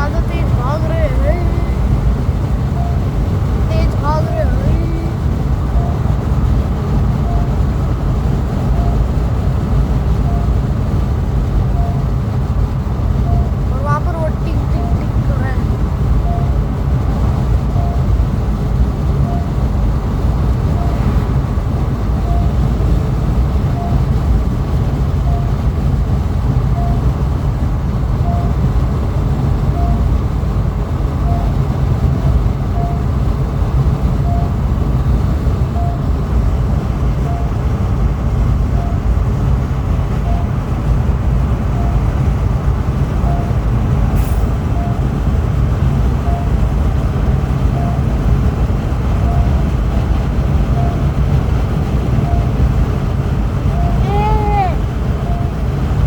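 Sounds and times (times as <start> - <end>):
road and engine rumble: 0.0 - 56.0
short high warning beep: 44.2 - 45.1.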